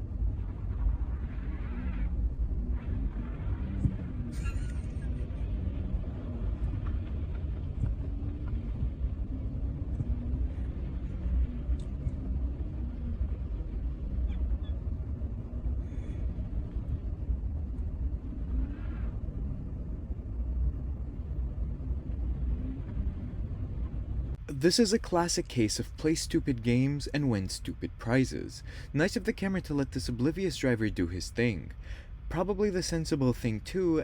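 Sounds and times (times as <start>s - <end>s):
car engine and road noise: 0.0s - 26.8s
faint ticks: 11.7s - 12.2s.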